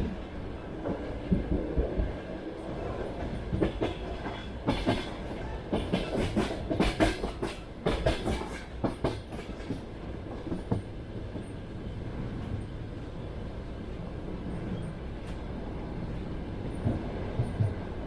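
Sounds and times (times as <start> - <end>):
rolling train rumble: 0.0 - 18.0
train wheels clacking on rail joints: 3.2 - 11.6.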